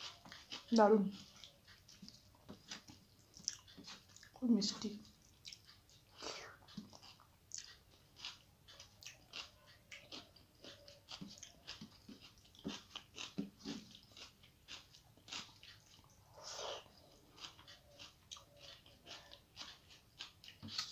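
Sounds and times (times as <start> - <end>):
chewing rice: 0.0 - 20.9
wet mouth clicks and smacks: 1.2 - 4.4, 20.4 - 20.9.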